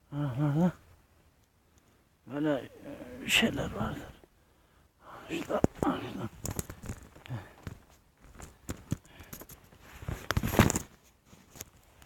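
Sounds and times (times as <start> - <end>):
twigs snapping: 5.4 - 9.6.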